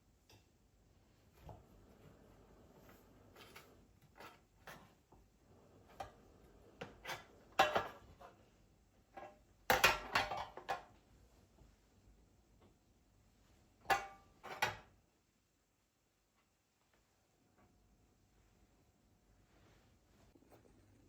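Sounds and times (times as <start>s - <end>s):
dishes and utensils clinking: 6.9s - 8.1s.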